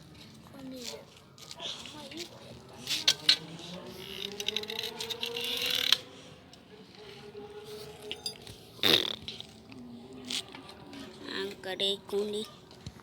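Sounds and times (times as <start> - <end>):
bicycle tyre scraping and clicks: 2.8 - 6.2.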